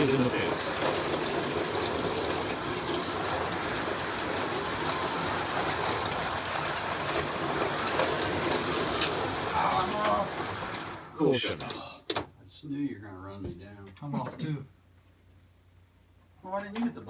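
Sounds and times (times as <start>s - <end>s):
slot cars whirring on track: 0.0s - 11.4s.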